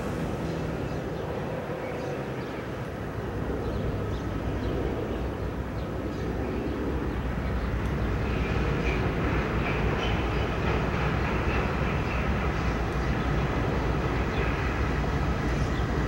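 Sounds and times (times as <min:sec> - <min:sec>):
locomotive low rumble: 0:00.0 - 0:04.3.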